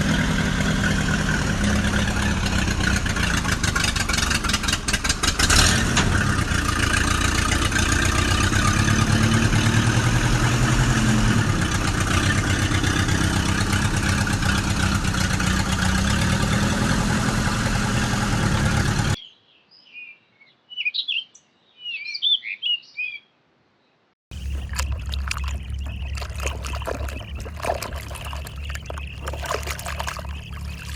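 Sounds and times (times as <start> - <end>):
engine pulsing: 0.0 - 19.2, 24.3 - 30.9
bird chirps: 19.2 - 23.3, 24.3 - 30.9.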